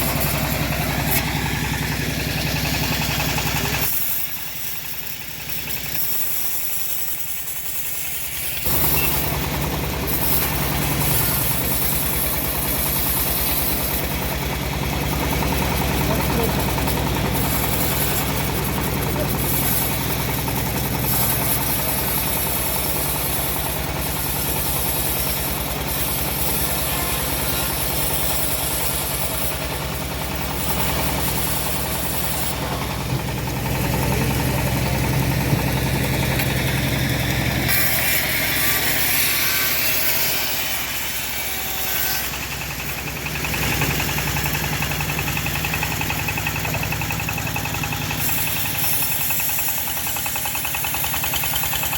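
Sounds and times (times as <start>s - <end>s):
engine hum: 0.0s - 51.9s
bandsaw blade hiss: 37.7s - 51.9s.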